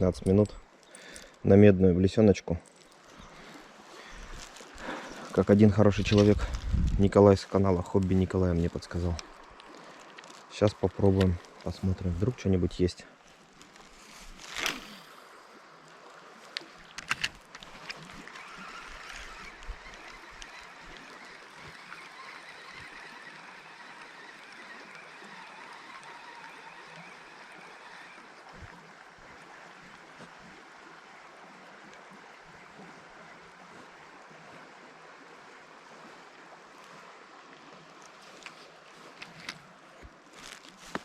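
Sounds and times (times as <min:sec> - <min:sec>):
river water flowing: 0:00.0 - 0:41.0
faint ticks: 0:16.4 - 0:27.1.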